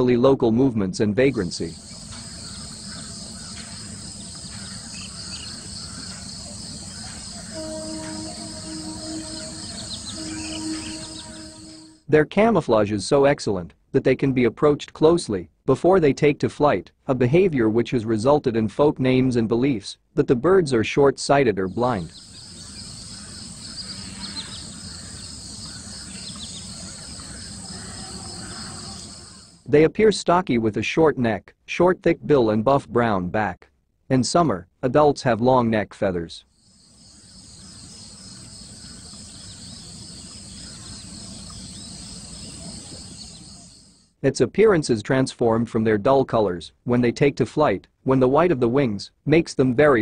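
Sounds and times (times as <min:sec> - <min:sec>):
faint low hum: 0:01.3 - 0:12.0
crickets chirping: 0:01.4 - 0:12.0, 0:22.0 - 0:29.6, 0:36.5 - 0:44.1
high-pitched insect chorus: 0:01.5 - 0:12.0, 0:22.0 - 0:29.6, 0:36.6 - 0:44.1
short bird chirps: 0:01.8 - 0:12.0
low held tone: 0:07.3 - 0:12.0.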